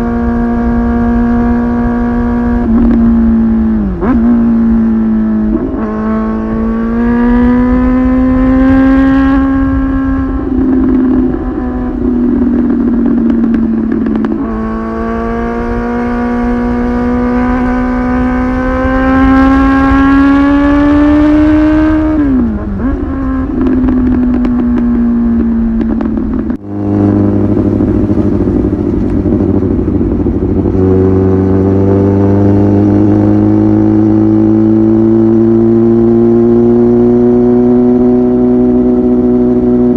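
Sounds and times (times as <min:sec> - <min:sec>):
motorcycle exhaust note: 0:00.0 - 0:39.9.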